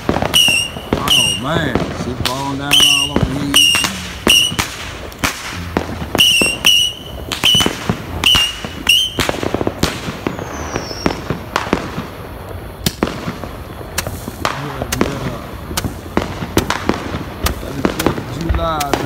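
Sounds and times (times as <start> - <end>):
firework cracks and pops: 0.0 - 19.0
firework whistles: 0.0 - 19.0.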